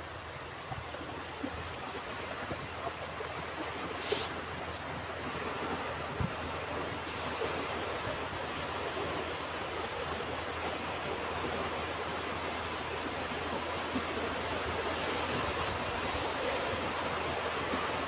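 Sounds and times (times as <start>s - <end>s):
ocean surf washing on beach: 4.0s - 4.3s.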